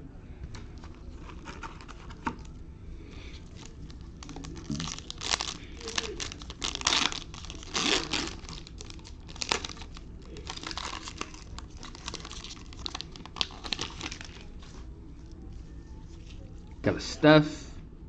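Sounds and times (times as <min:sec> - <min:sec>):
plastic wrapper crinkling and tearing: 0:00.8 - 0:02.6, 0:03.2 - 0:16.5.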